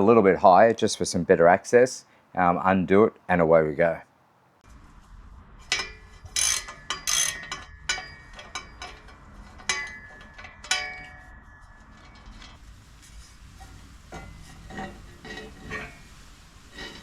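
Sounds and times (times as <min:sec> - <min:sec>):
metal tools clinking on bolts: 0:05.7 - 0:12.6.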